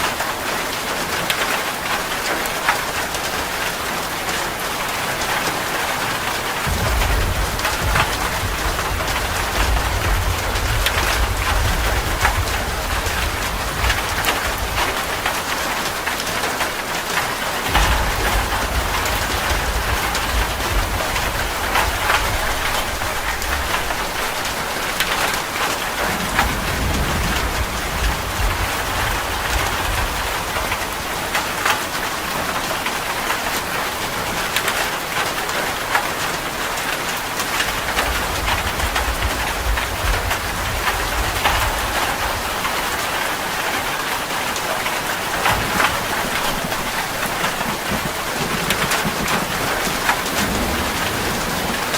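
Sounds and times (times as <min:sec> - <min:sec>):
heavy rain on metal roof: 0:00.0 - 0:51.9
low thunder rumble: 0:06.6 - 0:31.7, 0:37.6 - 0:51.9.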